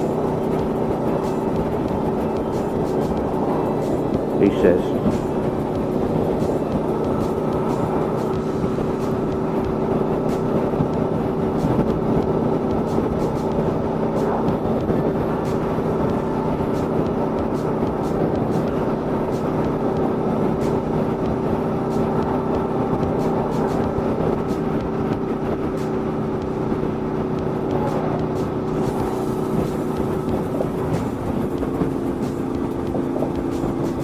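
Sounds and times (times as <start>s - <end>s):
motorcycle engine cruising: 0.0s - 34.0s
wind rush: 0.0s - 34.0s.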